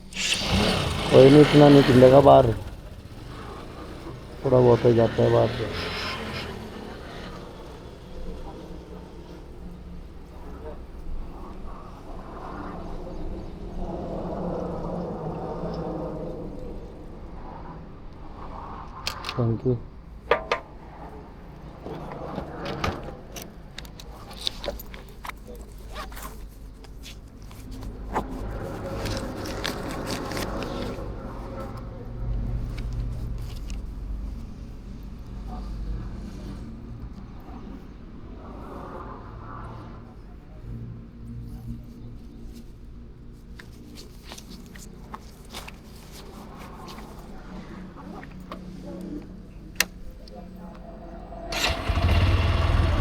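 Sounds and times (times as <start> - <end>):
sharp clicks and scraping rasps: 0.0 - 8.5, 23.3 - 34.2
low engine hum: 0.0 - 11.0, 44.6 - 53.0
handling noises: 22.2 - 34.5, 43.3 - 50.9.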